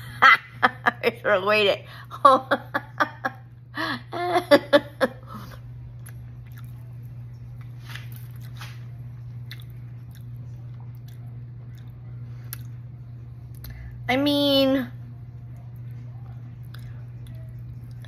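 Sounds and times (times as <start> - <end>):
steady low hum: 0.0 - 18.0
person chewing: 5.9 - 7.1, 7.9 - 12.8.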